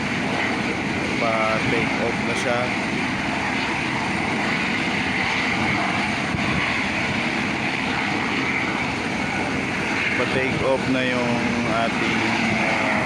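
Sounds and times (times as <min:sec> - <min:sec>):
helicopter turbine and rotor: 0:00.0 - 0:13.0.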